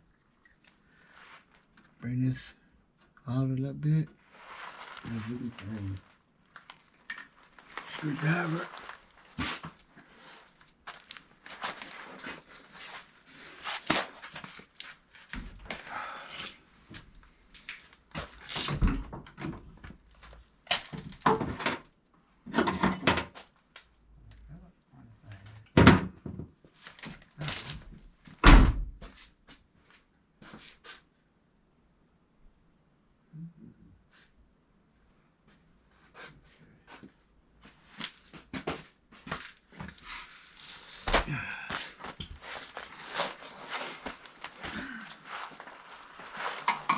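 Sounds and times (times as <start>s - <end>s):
hand tools knocking and scraping metal: 46.4s - 46.9s.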